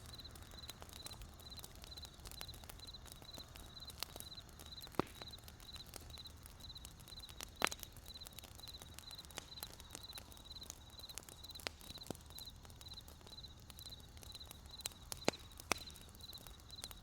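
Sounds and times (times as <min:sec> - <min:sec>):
campfire crackling and popping: 0:00.0 - 0:17.0
crickets chirping: 0:01.4 - 0:07.4, 0:08.1 - 0:15.0.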